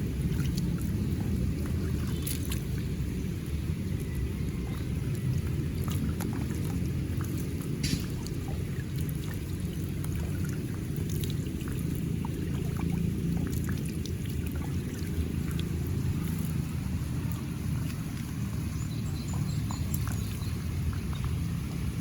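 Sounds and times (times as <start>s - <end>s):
small splashes and drips: 0.0s - 22.0s
water flowing and rushing: 0.0s - 22.0s.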